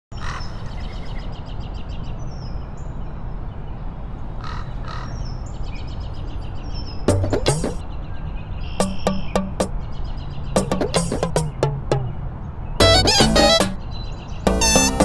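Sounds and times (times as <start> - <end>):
birds chirping: 4.9 - 15.0.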